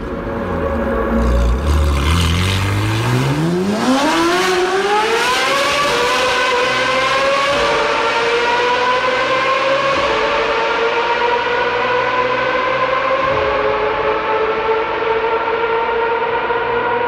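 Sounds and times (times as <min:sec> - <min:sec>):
sports car engine accelerating: 0:00.0 - 0:17.0.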